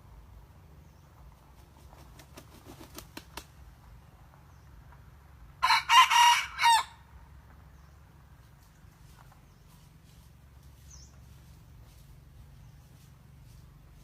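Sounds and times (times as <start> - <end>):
rooster crowing: 5.6 - 7.0.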